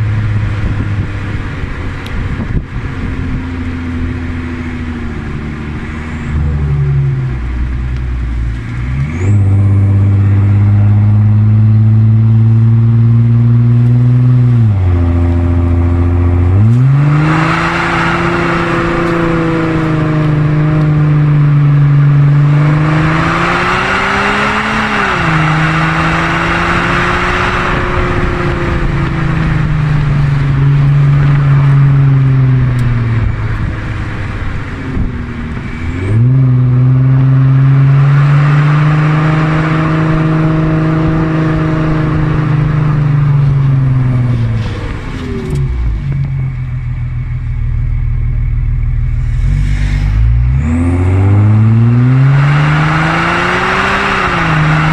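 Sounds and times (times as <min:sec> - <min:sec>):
loud diesel engine revving: 0:08.8 - 0:35.1, 0:35.7 - 0:45.9, 0:49.0 - 0:54.9.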